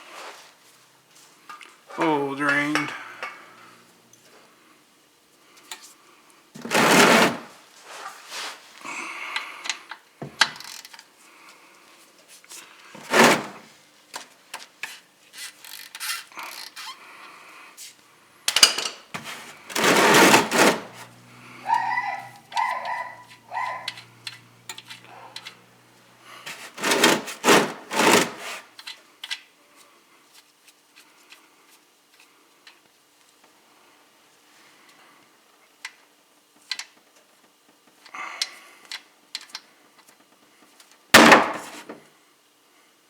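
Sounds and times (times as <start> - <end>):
hand tools clicking and scraping: 6.6 - 7.5, 13.0 - 13.7, 18.5 - 29.0, 41.2 - 42.0.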